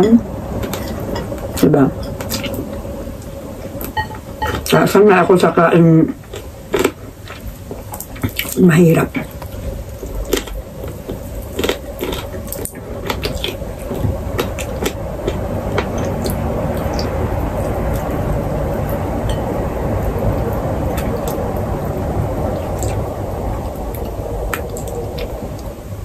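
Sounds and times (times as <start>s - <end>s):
steady rumbling noise: 0.0s - 26.0s
person chewing crispy chicken: 9.9s - 18.2s.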